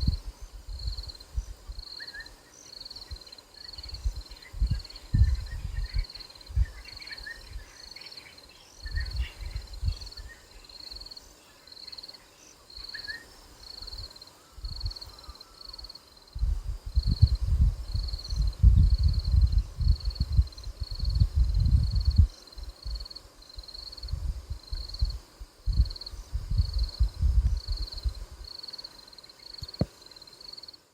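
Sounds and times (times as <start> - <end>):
insect chirping: 0.0 - 30.9
faint bird calls: 14.3 - 16.1
low rumble in gusts: 16.4 - 22.3, 24.0 - 28.4.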